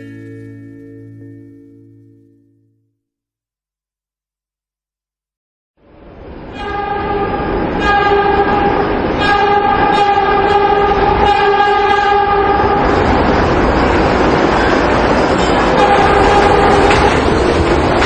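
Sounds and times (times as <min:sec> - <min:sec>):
subway train rumble: 0:05.8 - 0:18.0
subway train horn blasts: 0:06.2 - 0:13.2, 0:15.4 - 0:18.0.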